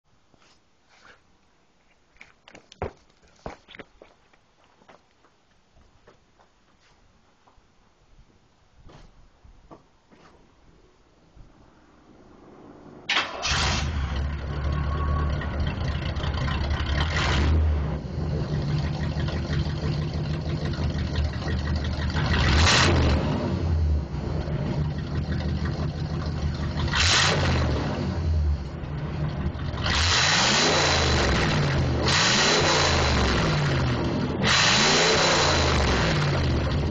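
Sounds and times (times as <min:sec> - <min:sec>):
car engine idling and revving: 0:12.1 - 0:36.9.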